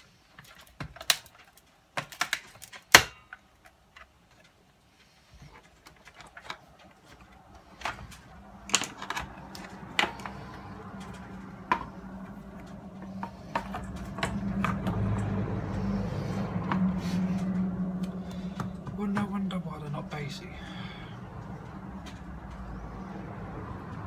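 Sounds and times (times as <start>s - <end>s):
plastic and metal parts clicking: 0.3s - 4.6s, 5.3s - 15.4s
low steady hum: 5.4s - 24.0s.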